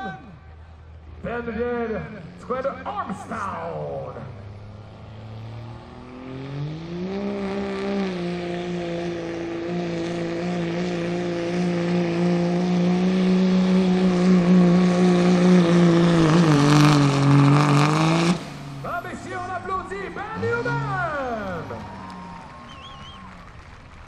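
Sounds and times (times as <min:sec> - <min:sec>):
diesel truck engine at full throttle: 0:00.0 - 0:24.0.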